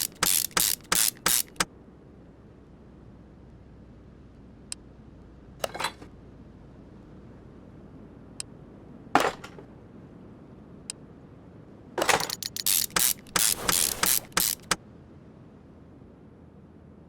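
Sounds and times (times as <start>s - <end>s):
ratchet wrench clicking: 0.0s - 1.7s, 12.1s - 14.8s
metallic clatter: 12.0s - 14.8s.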